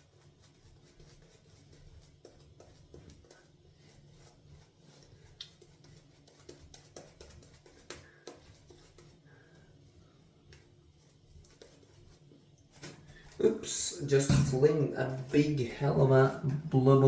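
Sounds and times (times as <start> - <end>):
shaving brush swishing lather: 0.0 - 16.4
brush knocking against tub: 12.8 - 17.0.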